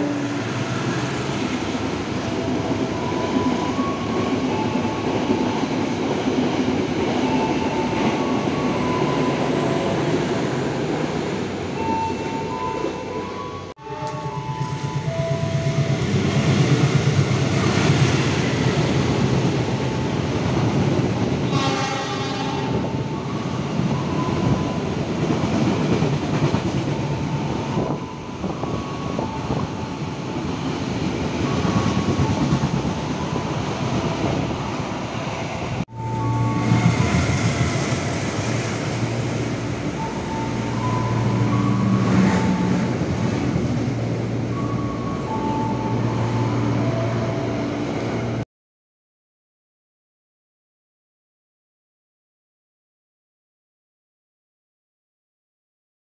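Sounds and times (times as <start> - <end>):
train rumble inside a coach: 0.0 - 48.4
train rumbling on rails: 0.0 - 48.4
train horn blast: 21.5 - 22.8.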